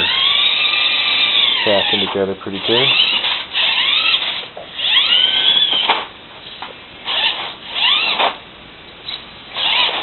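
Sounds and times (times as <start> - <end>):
electric motor whining: 0.0 - 6.1, 7.0 - 8.4, 9.1 - 10.0.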